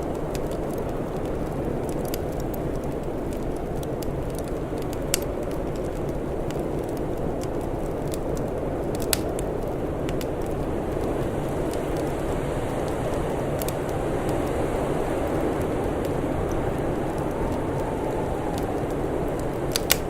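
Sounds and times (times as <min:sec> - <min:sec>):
wood fire crackling: 0:00.0 - 0:20.0
low rushing noise: 0:13.2 - 0:20.0.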